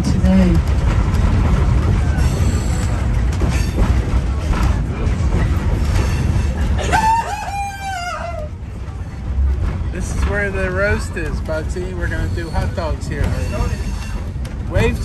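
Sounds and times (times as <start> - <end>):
train rumble with clicks: 0.0 - 15.0.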